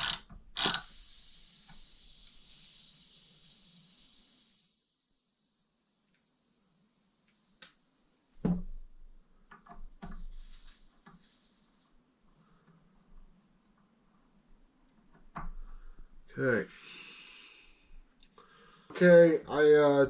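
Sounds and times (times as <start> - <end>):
metal tools clicking and tapping: 0.0 - 0.9.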